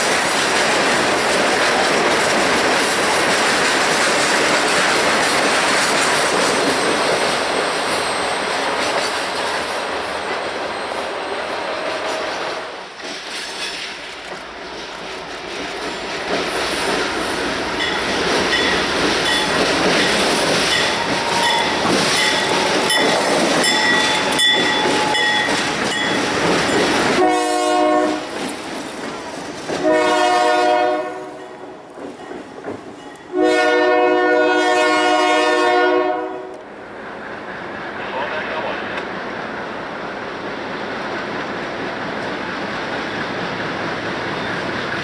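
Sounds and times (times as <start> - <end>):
freight train wheels on rail: 0.0 - 45.0
locomotive air horn blasts: 27.2 - 28.3, 29.8 - 31.4, 33.3 - 36.6.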